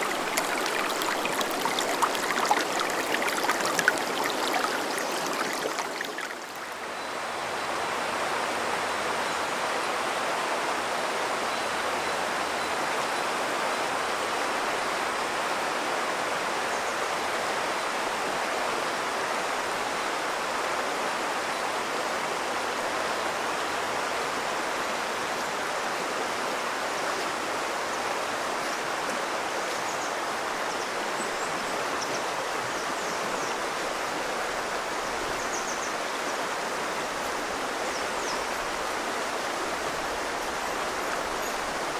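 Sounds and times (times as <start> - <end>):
river babbling over shallows: 0.0 - 6.9.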